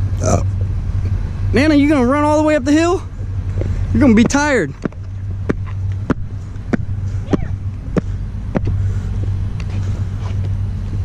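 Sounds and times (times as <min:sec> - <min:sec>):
steady low hum: 0:00.0 - 0:11.0
footsteps walking: 0:03.2 - 0:11.0.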